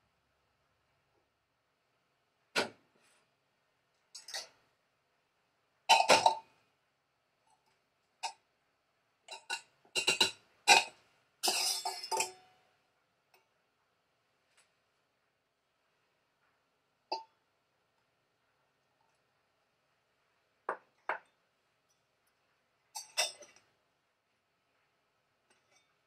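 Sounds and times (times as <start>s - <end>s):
food preparation clicks and knocks: 9.3s - 10.9s, 20.7s - 21.4s.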